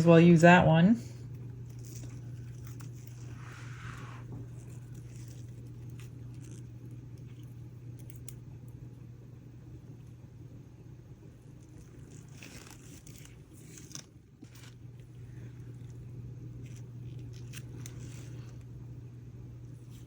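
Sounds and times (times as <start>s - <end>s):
steady low hum: 0.0s - 20.0s
soft rustle: 1.4s - 7.6s, 11.5s - 18.7s.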